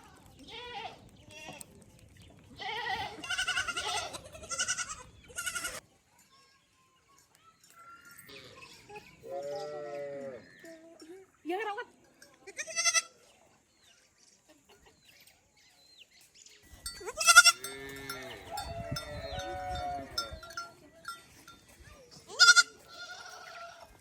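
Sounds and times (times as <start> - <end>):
goats bleating: 2.6 - 5.8, 12.5 - 13.1, 16.8 - 21.2, 22.3 - 24.0.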